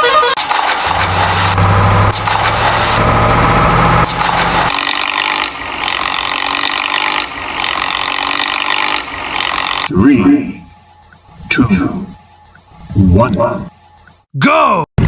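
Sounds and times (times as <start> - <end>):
heavy vehicle engine drone: 0.0 - 9.9
higher-pitched machine sound: 0.3 - 9.9.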